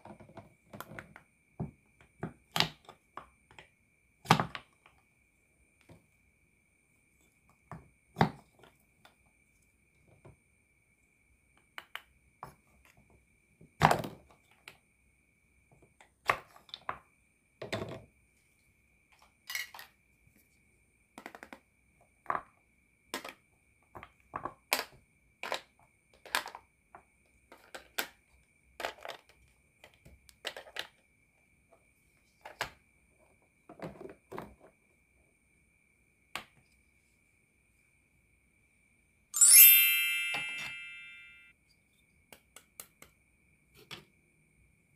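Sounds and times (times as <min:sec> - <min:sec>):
faint steady high tone: 0:39.4 - 0:41.7.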